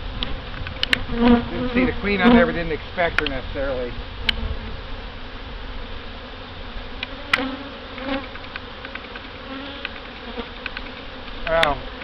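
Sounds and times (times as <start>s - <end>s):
bees buzzing: 0.0s - 12.0s
sharp clicks: 7.0s - 11.7s.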